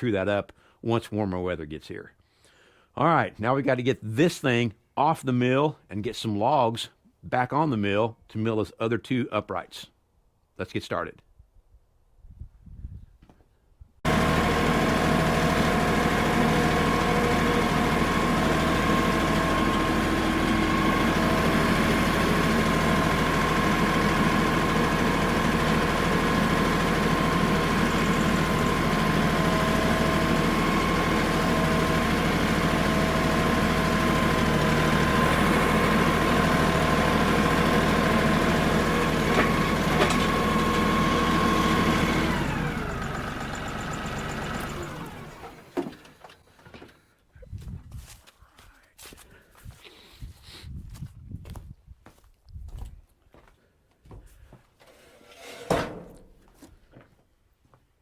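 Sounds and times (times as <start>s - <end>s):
tractor engine running: 14.1s - 46.9s.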